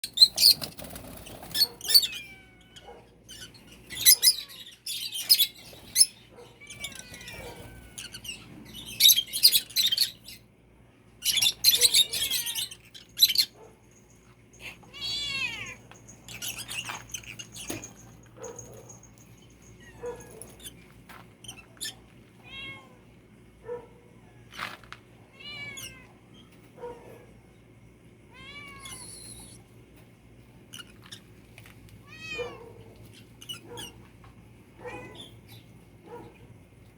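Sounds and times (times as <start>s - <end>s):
kitten meowing: 14.9s - 15.8s, 28.3s - 29.5s.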